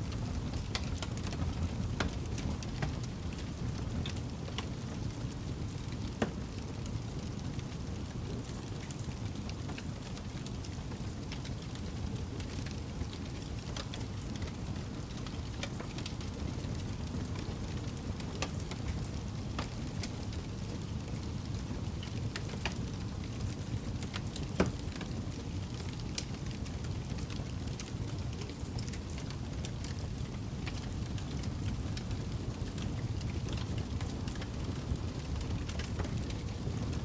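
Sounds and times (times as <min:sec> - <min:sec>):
campfire crackling: 0:00.1 - 0:37.0.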